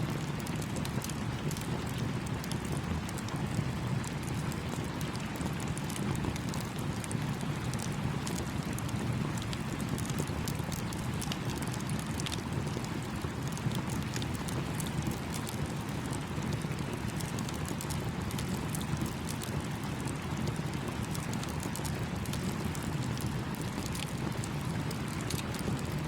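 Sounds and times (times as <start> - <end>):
campfire crackling and popping: 0.2 - 26.0.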